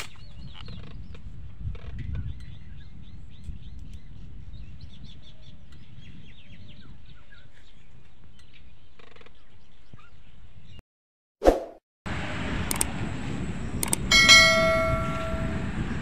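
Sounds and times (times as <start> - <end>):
small birds chirping: 0.0 - 10.8
steady low rumble: 12.1 - 16.0.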